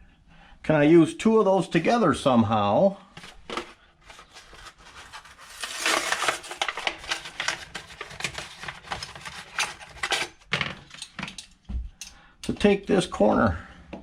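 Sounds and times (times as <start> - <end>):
plastic fittings rustling and clicking: 3.2 - 12.8.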